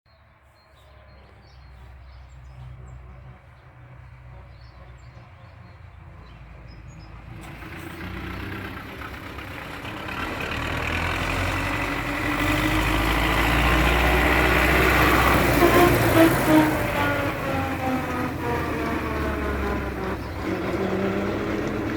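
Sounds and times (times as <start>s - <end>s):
tractor diesel engine running: 1.0s - 21.9s.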